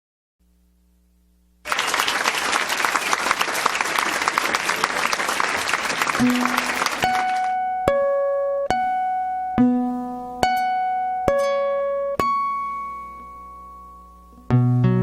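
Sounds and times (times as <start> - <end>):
audience applauding: 1.7 - 7.5
plucked guitar notes: 6.2 - 15.0.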